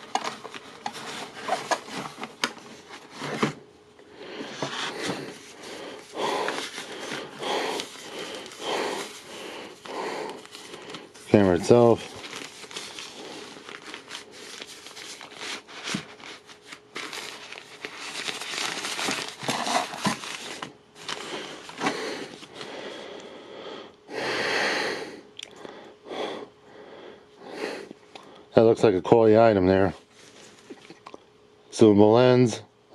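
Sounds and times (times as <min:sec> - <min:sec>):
plastic packaging crinkling: 0:00.0 - 0:03.2, 0:05.4 - 0:22.6.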